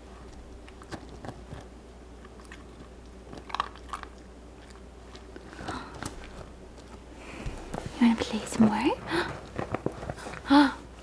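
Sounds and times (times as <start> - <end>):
puppy crunching ice cube: 2.3 - 6.3.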